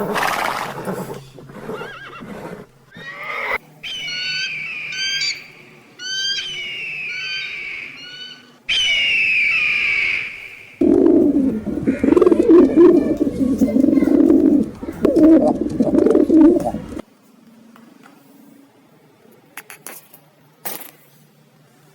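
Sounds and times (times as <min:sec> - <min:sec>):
faint clicks: 0:10.8 - 0:17.0
pigeons cooing: 0:10.8 - 0:17.0.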